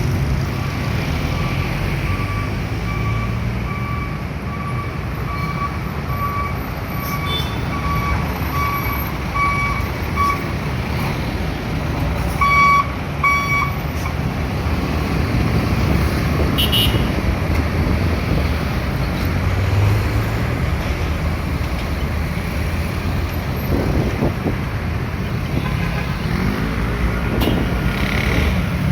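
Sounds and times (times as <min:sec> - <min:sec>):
heavy truck traffic rumbling: 0:00.0 - 0:28.9
reversing alarm beeping: 0:00.6 - 0:10.5.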